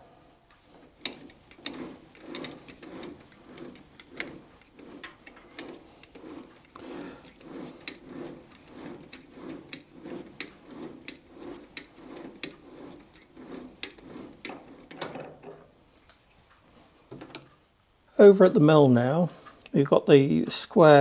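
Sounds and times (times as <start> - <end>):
thread tap grinding in metal: 0.9 - 15.6.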